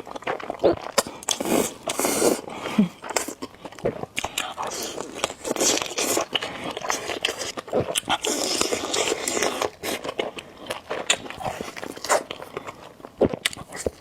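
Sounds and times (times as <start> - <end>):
wet chewing: 0.0 - 14.0
slurping noodles: 1.2 - 3.4, 4.4 - 10.1.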